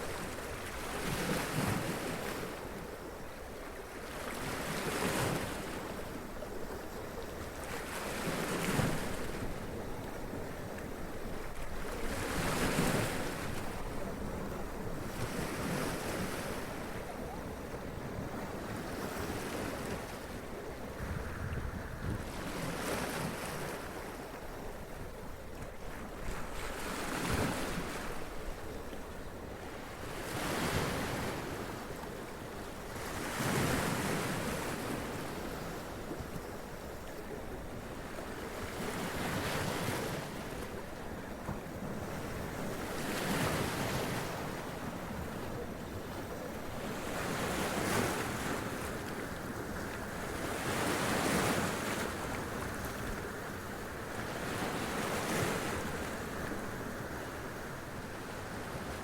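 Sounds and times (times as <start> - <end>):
wind on microphone: 20.5 - 23.5.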